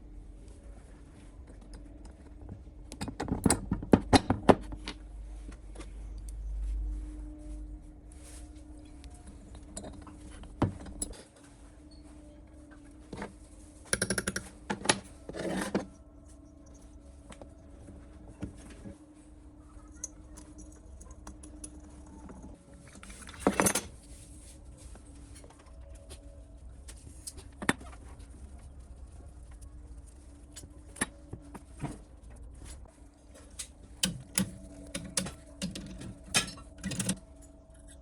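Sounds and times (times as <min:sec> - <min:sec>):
clicks and knocks: 0:33.6 - 0:37.2
metal parts clinking and rattling: 0:34.0 - 0:38.0.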